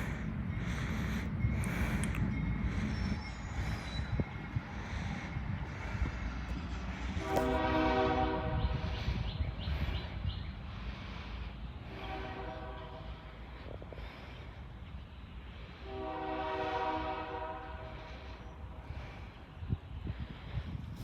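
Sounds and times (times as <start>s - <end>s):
locomotive horn blast: 7.2s - 9.0s, 11.9s - 13.3s, 15.8s - 18.2s.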